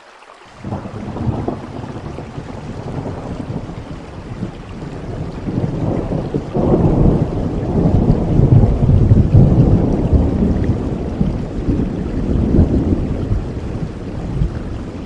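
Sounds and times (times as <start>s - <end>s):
steady rain: 0.0s - 15.0s
thunder rumbling: 0.6s - 15.0s.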